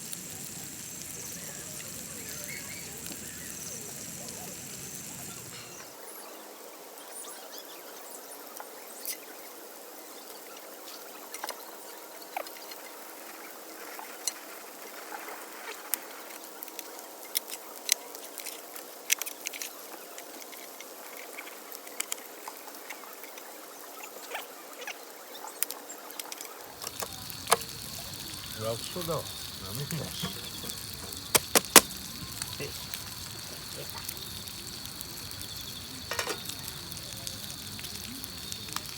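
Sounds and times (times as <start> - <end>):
campfire crackling: 0.0 - 6.0, 12.8 - 24.0, 25.5 - 38.9.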